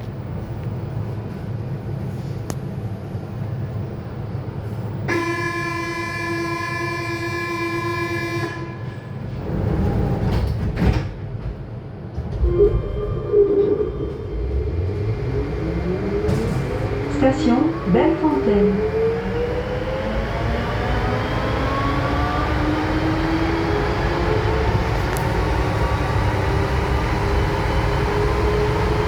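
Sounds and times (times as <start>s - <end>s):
train doors shutting thud: 9.8s - 12.8s, 16.1s - 17.6s
steady warning tone: 12.3s - 24.9s
traction motor whine rising: 12.3s - 29.0s.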